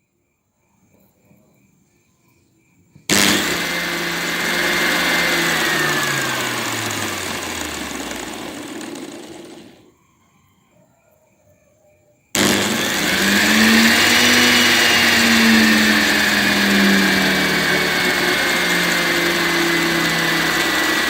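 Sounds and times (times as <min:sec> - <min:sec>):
angle grinder motor whining: 0:03.1 - 0:09.9, 0:12.4 - 0:21.0.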